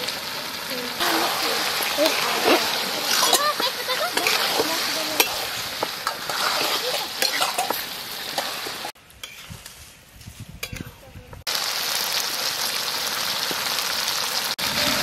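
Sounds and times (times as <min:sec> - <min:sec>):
meat and potatoes sizzling in oil: 0:00.0 - 0:09.6, 0:10.6 - 0:15.0
spatula scraping a pan: 0:01.0 - 0:10.0.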